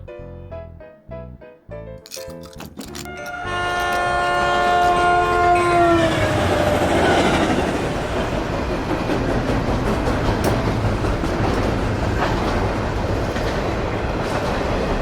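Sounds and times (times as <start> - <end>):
train horn chord: 3.1 - 7.0
train rumbling by: 3.3 - 15.0.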